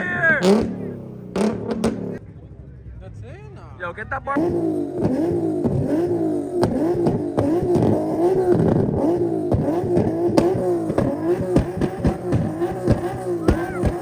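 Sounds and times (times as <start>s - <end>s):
car engine bouncing on rev limiter: 0.0s - 2.4s, 4.4s - 14.0s
exhaust pops and cracks: 5.0s - 14.0s.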